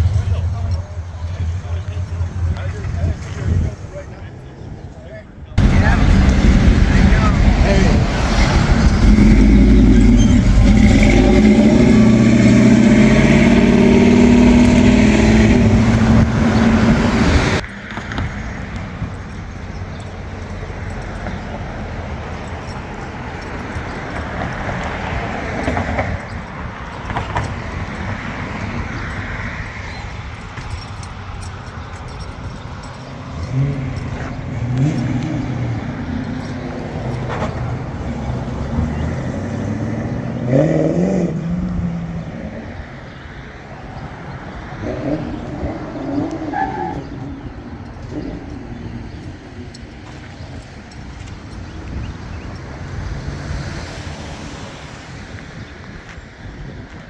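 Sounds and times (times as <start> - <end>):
engine revving: 5.6 - 17.6, 32.8 - 42.8
loud car engine running: 5.6 - 17.6.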